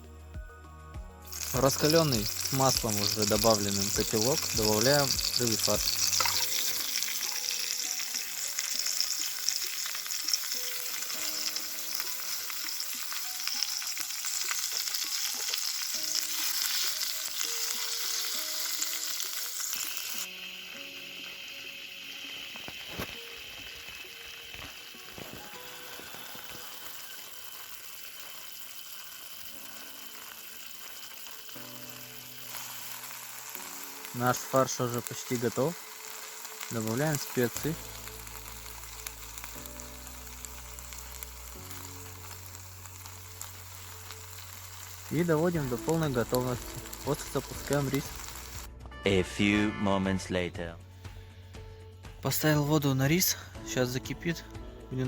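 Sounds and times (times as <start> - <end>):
food sizzling in hot oil: 1.2 - 48.8.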